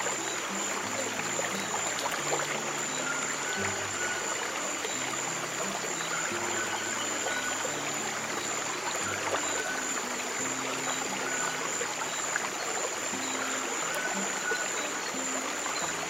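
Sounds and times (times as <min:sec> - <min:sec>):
soft low sustained music: 0:00.0 - 0:16.0
stream flowing: 0:00.0 - 0:16.0.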